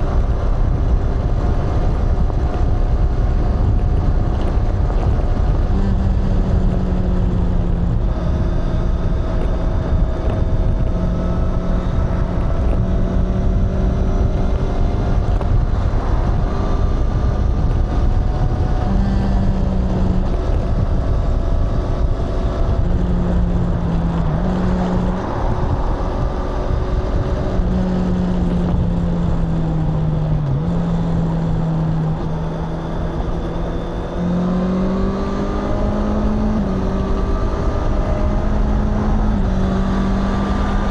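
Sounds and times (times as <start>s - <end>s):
motorcycle engine and exhaust: 0.0s - 40.9s.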